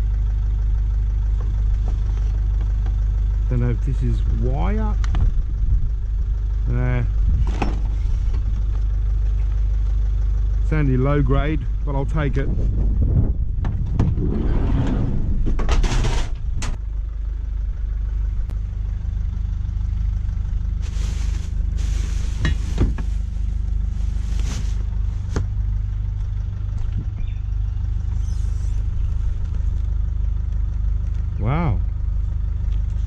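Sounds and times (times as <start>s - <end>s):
vehicle engine running: 0.0s - 33.0s
rustling handling noises: 20.7s - 25.5s.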